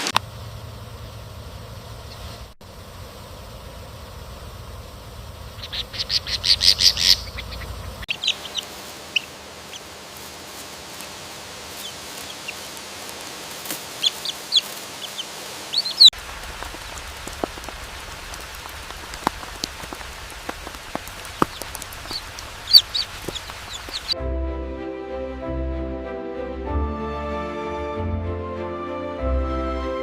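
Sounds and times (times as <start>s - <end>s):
steady hiss: 0.0s - 24.2s
low hum: 0.0s - 26.1s
bird chirps and clucks: 5.5s - 9.9s, 11.8s - 12.8s, 13.9s - 17.6s, 20.6s - 24.2s
sharp ticks: 15.8s - 24.2s.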